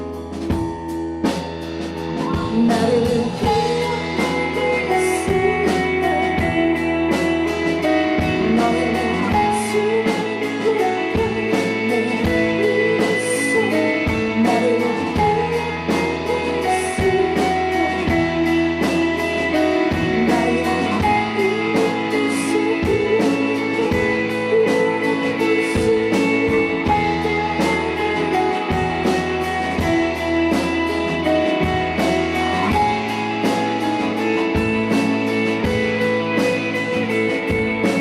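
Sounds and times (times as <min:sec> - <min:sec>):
bass guitar: 0:00.0 - 0:38.0
electric guitar: 0:00.0 - 0:38.0
steady drums: 0:00.0 - 0:38.0.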